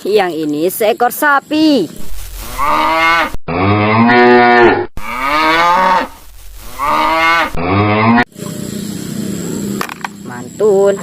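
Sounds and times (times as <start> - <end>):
cow mooing: 2.5 - 8.3.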